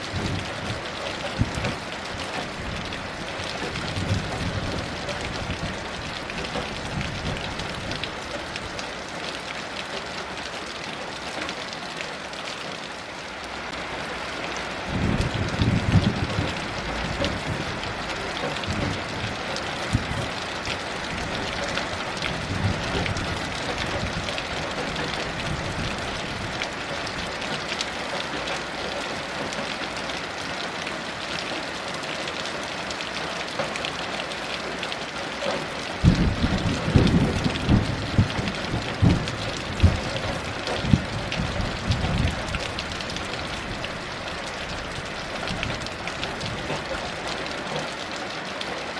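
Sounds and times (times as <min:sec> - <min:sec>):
heavy rain: 0:00.0 - 0:48.9
distant thunder rumbling: 0:14.9 - 0:20.4, 0:36.0 - 0:44.1.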